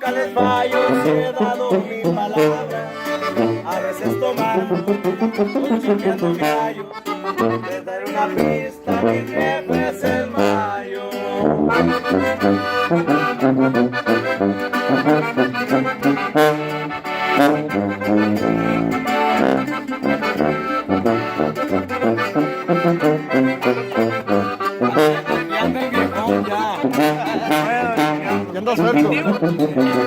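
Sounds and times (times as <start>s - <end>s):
accordion playing melodic runs: 0.0s - 30.0s
tuba bass line: 0.0s - 30.0s.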